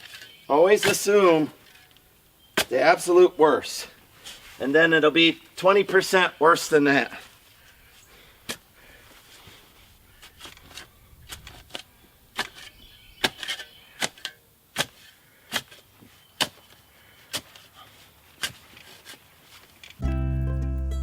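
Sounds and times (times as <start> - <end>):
hand tool chopping roots: 0.0 - 1.4, 10.3 - 19.2.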